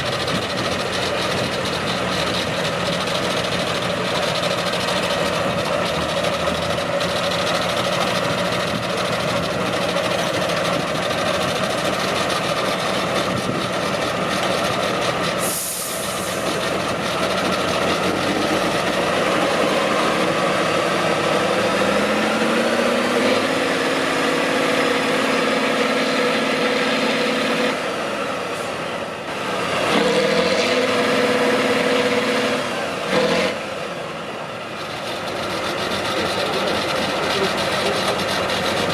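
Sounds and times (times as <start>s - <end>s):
heavy truck engine under load: 0.0s - 38.9s
air hiss: 15.4s - 16.5s.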